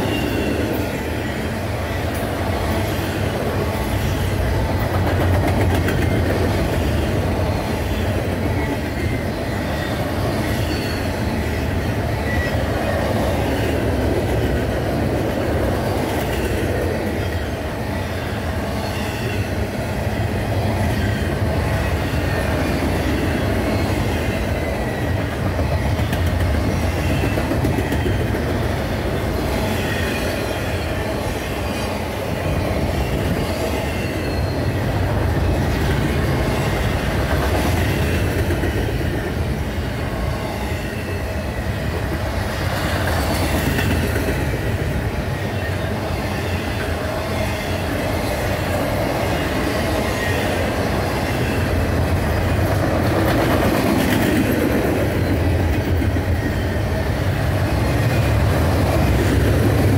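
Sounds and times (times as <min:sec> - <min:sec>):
faint high wheel squeal: 0:07.5 - 0:13.7, 0:33.4 - 0:35.2.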